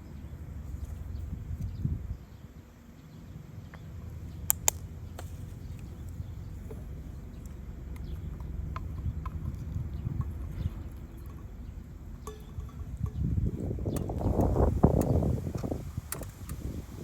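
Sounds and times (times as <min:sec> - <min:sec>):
wind rumbling on microphone: 0:00.0 - 0:02.7, 0:05.5 - 0:17.0
sharp clicks: 0:04.5 - 0:05.9.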